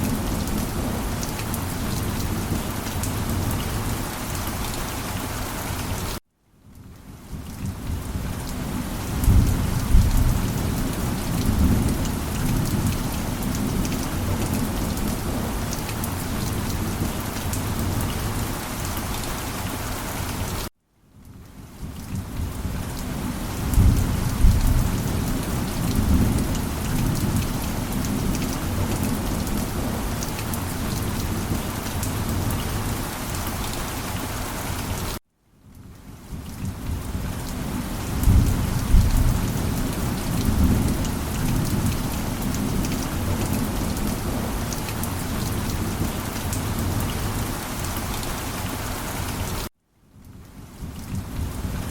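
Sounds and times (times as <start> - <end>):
heavy rain falling: 0.0 - 6.2, 6.8 - 20.7, 21.3 - 35.2, 36.1 - 49.7, 50.3 - 51.9
low rolls of thunder: 9.1 - 15.5, 23.6 - 30.2, 38.1 - 44.6.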